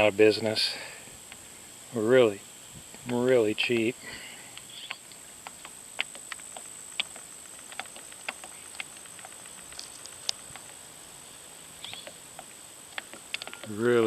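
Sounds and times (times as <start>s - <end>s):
faint hiss: 0.0s - 14.0s
light clicks and ticks: 11.8s - 13.8s.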